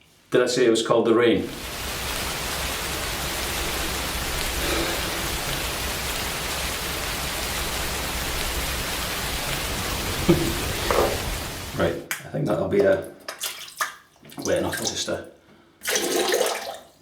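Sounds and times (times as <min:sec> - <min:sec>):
heavy rain hissing: 0:01.4 - 0:12.0.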